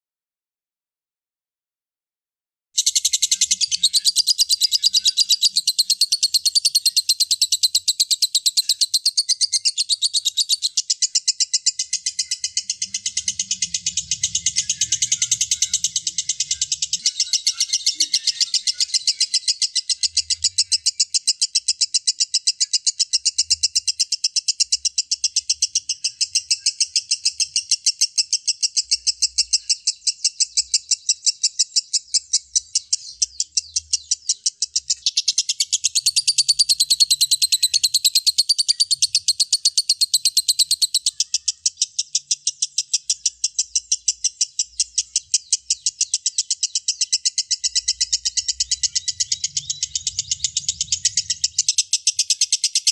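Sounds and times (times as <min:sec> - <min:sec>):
lovebird shrill chatter: 0:35.0 - 0:44.3.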